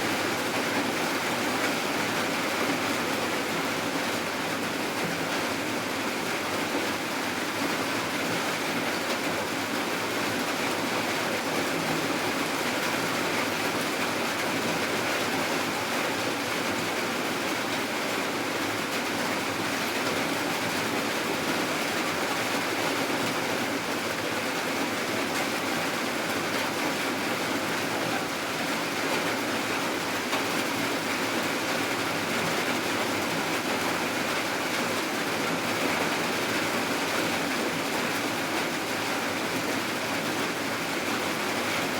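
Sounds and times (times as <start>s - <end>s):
steady rainfall: 0.0s - 41.9s.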